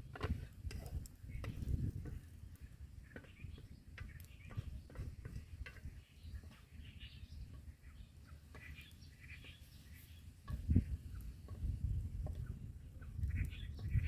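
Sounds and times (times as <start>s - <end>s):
spoon stirring rice in a pot: 0.0s - 12.6s.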